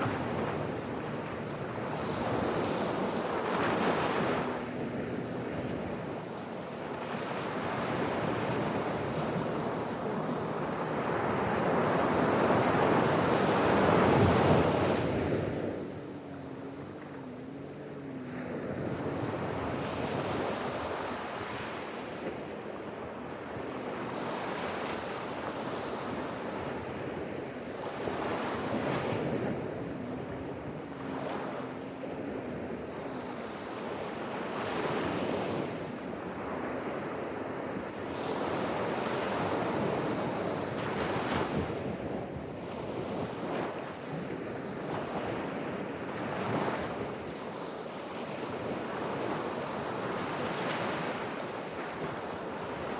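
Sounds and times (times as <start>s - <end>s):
ocean waves breaking: 0.0s - 6.0s, 26.6s - 37.6s.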